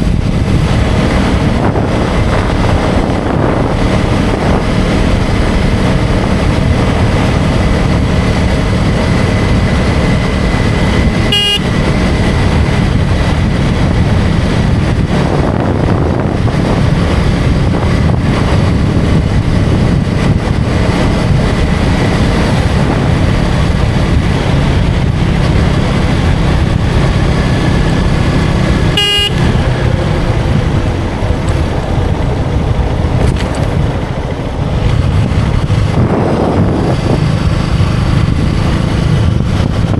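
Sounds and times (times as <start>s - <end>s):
motorcycle engine running: 0.0s - 39.9s
wind noise on microphone: 0.0s - 39.9s
horn toots: 11.0s - 12.5s, 28.7s - 30.4s.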